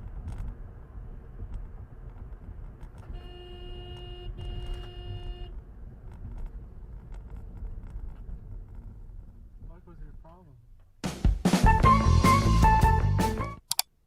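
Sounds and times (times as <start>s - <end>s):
car driving rumble: 0.0s - 11.0s
car horn blasts: 3.0s - 5.6s.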